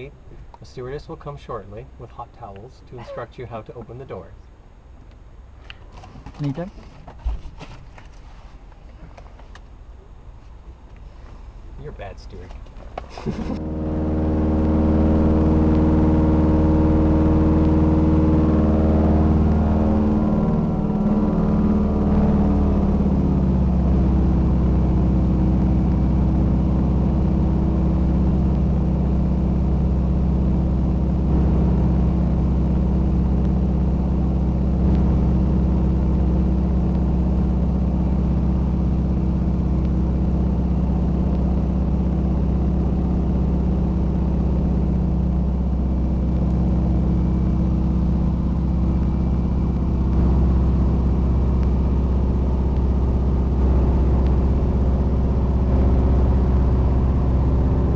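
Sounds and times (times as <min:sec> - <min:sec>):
small plane engine and propeller: 0:12.2 - 0:57.9.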